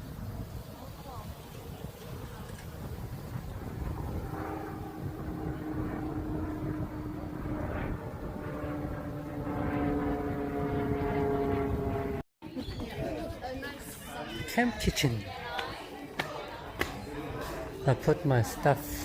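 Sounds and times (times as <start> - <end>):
wind rumble on microphone: 0.0 - 12.2
steady engine drone: 2.8 - 12.2, 16.7 - 19.0.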